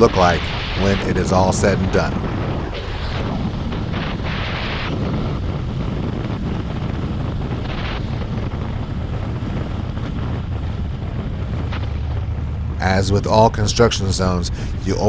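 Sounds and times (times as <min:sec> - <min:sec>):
road rumble: 0:00.0 - 0:03.2, 0:12.5 - 0:15.0
wind rushing over microphone: 0:00.0 - 0:03.2.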